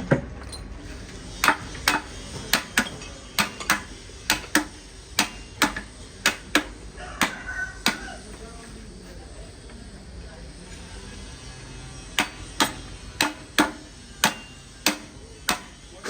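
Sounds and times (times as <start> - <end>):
hammer striking metal: 1.3 - 8.2, 12.1 - 15.9.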